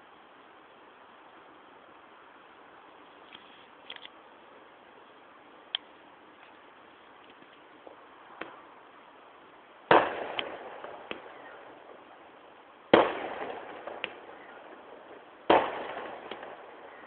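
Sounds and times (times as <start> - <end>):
firework booms with echo: 9.9 - 12.3, 12.9 - 17.0
firework cracks: 9.9 - 17.0.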